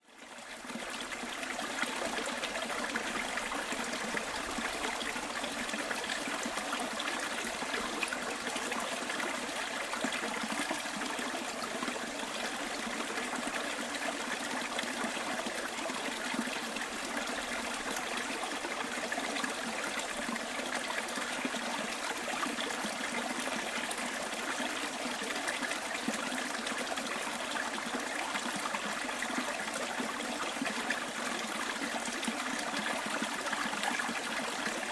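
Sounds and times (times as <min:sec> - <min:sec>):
stream water trickling: 0:00.1 - 0:34.9.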